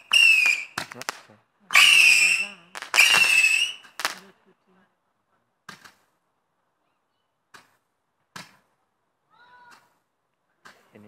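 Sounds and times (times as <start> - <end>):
fireworks cracking: 0.0 - 4.6.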